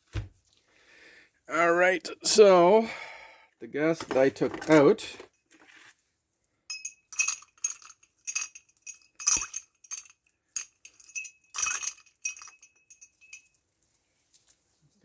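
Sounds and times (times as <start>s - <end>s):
saw chain clinking: 6.7s - 13.6s.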